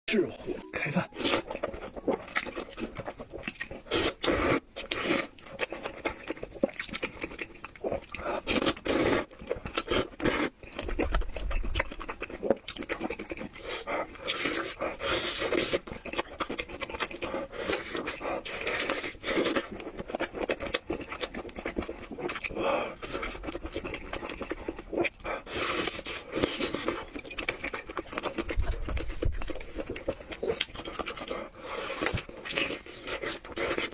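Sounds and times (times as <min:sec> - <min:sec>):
person slurping noodles: 0:03.7 - 0:05.4, 0:07.8 - 0:10.6, 0:17.1 - 0:20.4.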